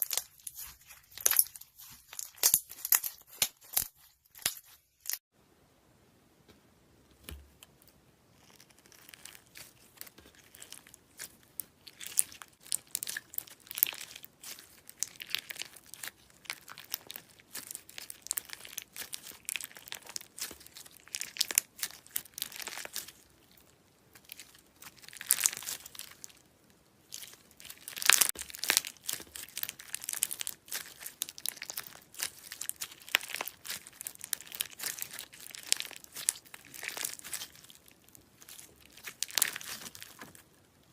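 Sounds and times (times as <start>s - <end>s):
slime squeezed crackling: 8.3s - 26.4s, 27.1s - 40.6s.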